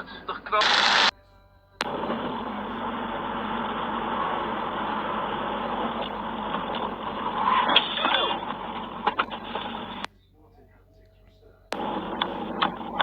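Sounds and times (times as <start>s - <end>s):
car road noise: 1.8s - 10.1s, 11.8s - 13.0s.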